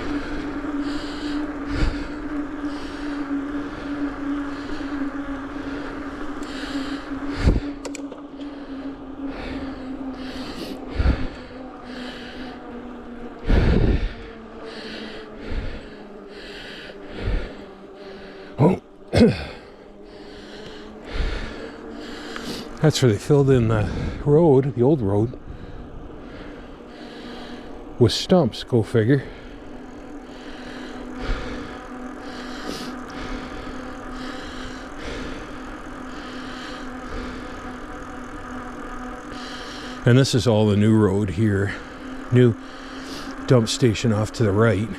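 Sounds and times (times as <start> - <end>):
bicycle rolling on road: 0.0 - 44.9
cyclist breathing hard: 0.0 - 44.9
wind rumble on microphone: 7.3 - 7.8, 13.5 - 14.2.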